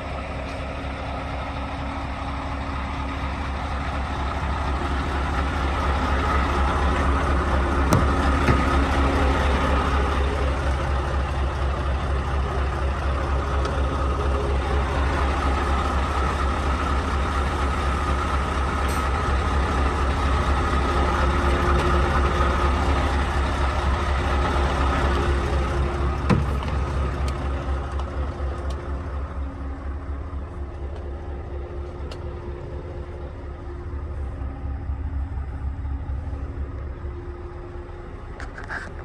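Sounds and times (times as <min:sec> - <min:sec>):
diesel engine rumbling: 0:00.0 - 0:39.0.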